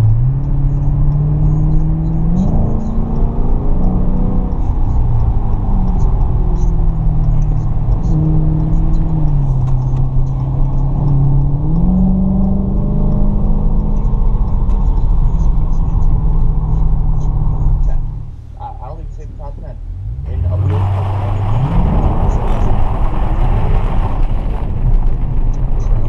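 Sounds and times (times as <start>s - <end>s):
car engine from inside: 0.0s - 26.0s
road noise: 0.0s - 26.0s.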